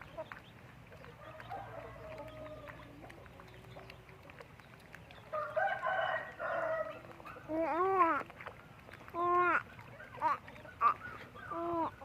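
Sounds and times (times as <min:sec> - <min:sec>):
chickens calling: 0:00.0 - 0:12.0
rooster crowing: 0:01.2 - 0:02.8, 0:05.3 - 0:07.0.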